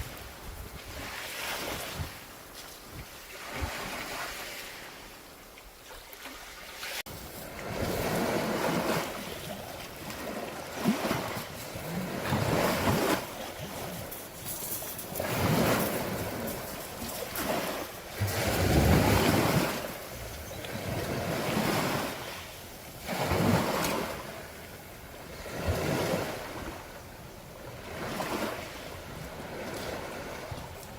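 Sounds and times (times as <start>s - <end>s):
wind on microphone: 0.0s - 4.5s, 7.2s - 26.8s
sea waves breaking on shore: 0.0s - 30.9s.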